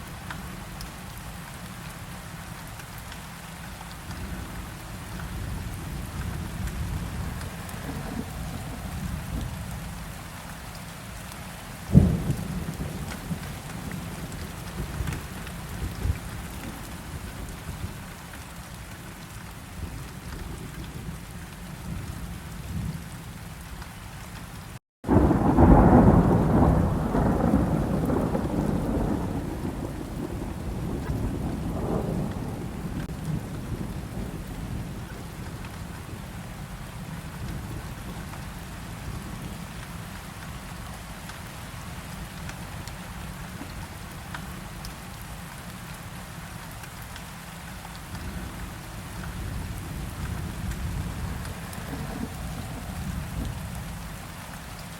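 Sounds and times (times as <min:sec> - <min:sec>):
steady rain: 0:00.0 - 0:54.9
thunder rumble: 0:04.4 - 0:10.2, 0:11.9 - 0:18.0, 0:25.0 - 0:38.4, 0:48.2 - 0:54.2
thunder crack: 0:25.0 - 0:33.8.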